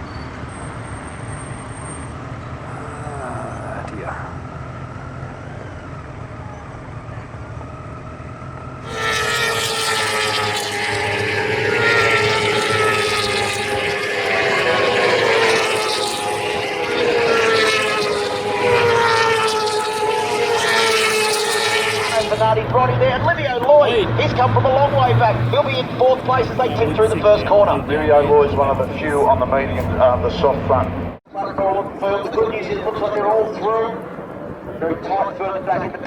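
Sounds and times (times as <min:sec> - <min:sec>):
racing motorcycle engines wailing: 0:00.0 - 0:36.0.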